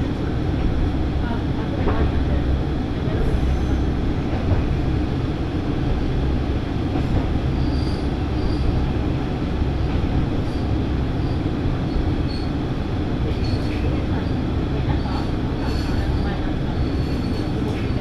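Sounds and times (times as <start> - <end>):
railcar engine and wheels rumbling: 0.0 - 18.0
faint high squeaks: 11.9 - 12.6.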